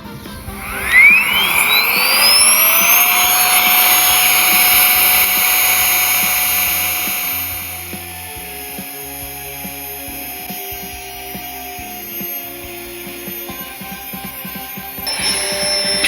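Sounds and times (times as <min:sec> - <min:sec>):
electric blower motor whine: 0:00.0 - 0:16.0.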